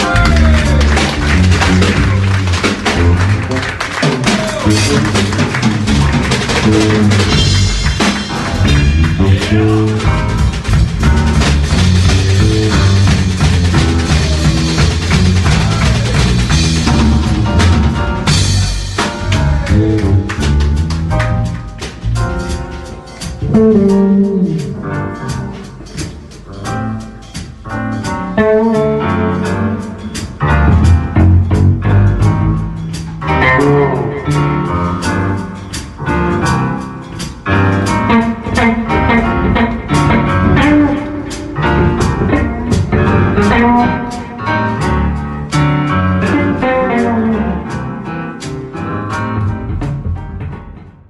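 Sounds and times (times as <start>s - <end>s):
bass line: 0.0s - 50.8s
drum kit strikes: 0.0s - 51.0s
guitar lines: 31.9s - 50.4s.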